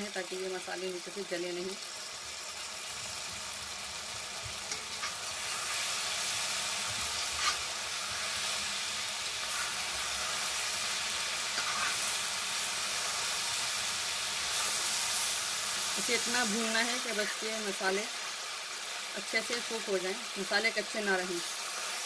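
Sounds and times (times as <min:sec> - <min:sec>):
vegetables sizzling in oil: 0:00.0 - 0:22.0
spatula scraping a pan: 0:06.8 - 0:08.8, 0:09.4 - 0:13.4.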